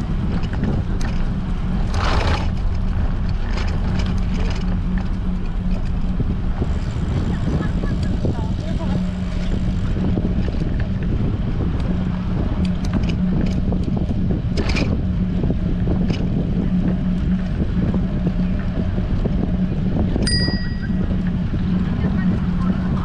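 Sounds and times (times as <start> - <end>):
low hum: 0.0 - 23.0
wind buffeting microphone: 0.0 - 23.0
bright metallic ding: 20.2 - 21.0.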